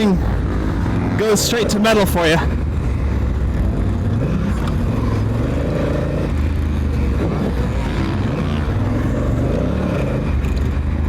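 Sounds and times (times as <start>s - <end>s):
motorcycle engine revving off-road: 0.0s - 11.0s.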